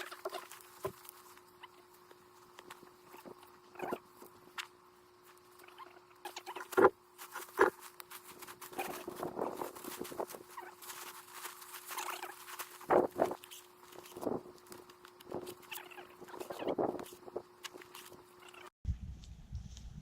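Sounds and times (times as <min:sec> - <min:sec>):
gear rustling into backpack: 0:06.7 - 0:18.6.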